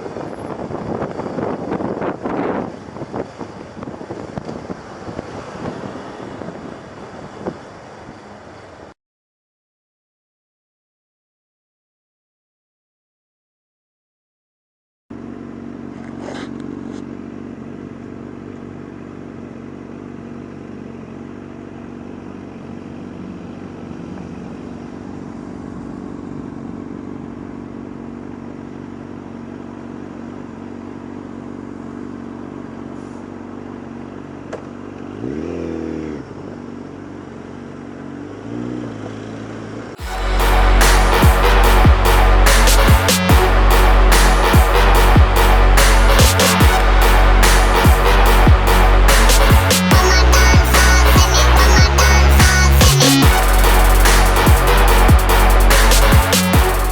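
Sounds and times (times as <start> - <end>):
motorcycle engine revving: 15.1 - 56.9
electronic music: 40.0 - 56.9.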